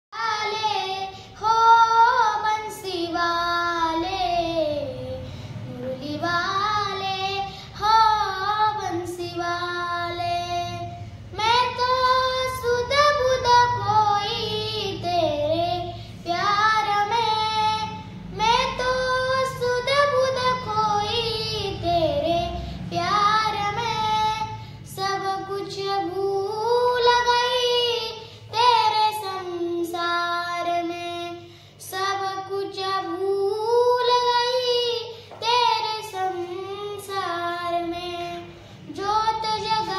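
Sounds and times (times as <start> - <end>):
girl singing devotional song: 0.1 - 39.9.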